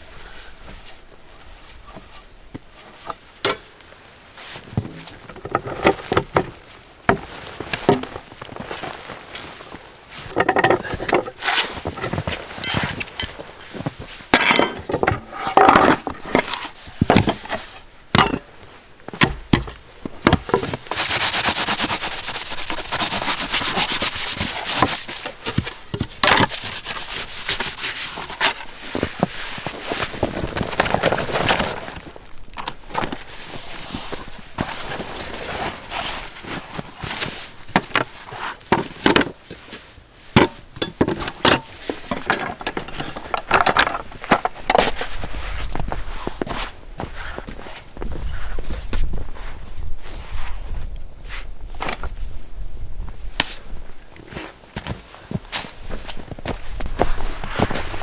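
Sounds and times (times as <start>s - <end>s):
handling knocks and clicks: 2.6s - 3.8s, 10.3s - 20.8s, 40.4s - 45.0s
rubbing or scraping: 10.2s - 13.8s, 20.6s - 32.0s.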